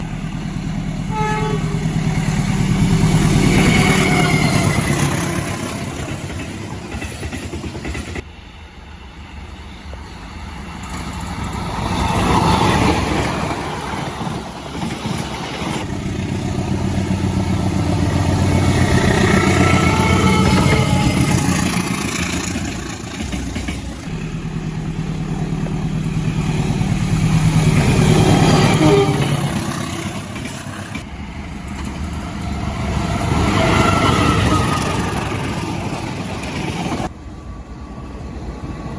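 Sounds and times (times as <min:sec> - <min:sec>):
diesel trains passing: 0:00.0 - 0:38.9.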